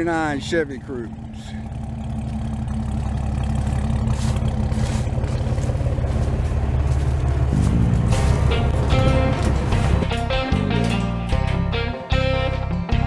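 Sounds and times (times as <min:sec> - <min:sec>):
pickup truck engine running: 0:00.0 - 0:12.6
guitar music: 0:04.8 - 0:13.0.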